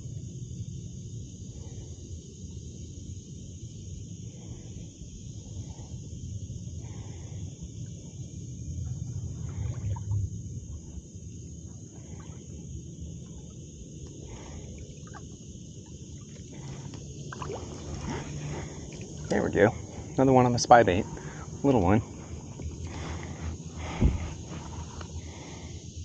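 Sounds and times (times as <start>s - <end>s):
insects droning: 0.0s - 26.0s
low steady water rush: 6.7s - 25.8s.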